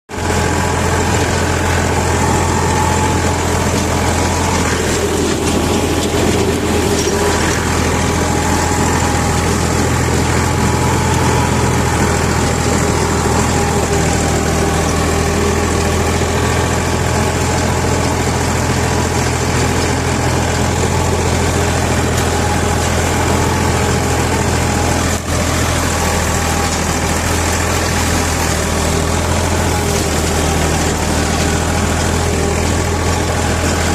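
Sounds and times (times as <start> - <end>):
tractor engine running under load: 0.1 - 33.9.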